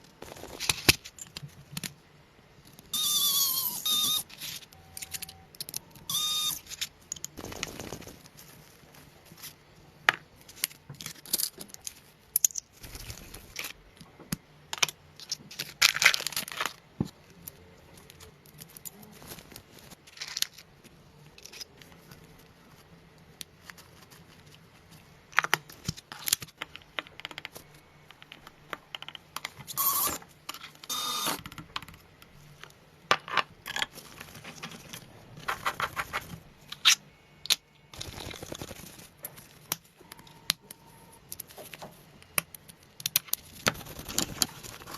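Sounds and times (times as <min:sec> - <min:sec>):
rustling and scraping: 0:15.2 - 0:26.6, 0:33.8 - 0:37.0.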